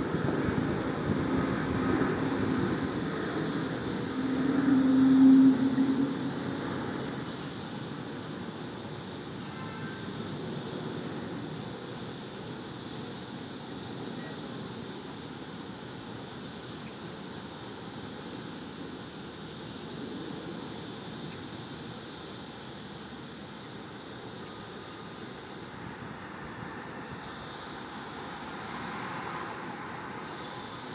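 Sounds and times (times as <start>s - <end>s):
urban hum: 0.0s - 30.9s
engine passing by: 28.4s - 30.7s.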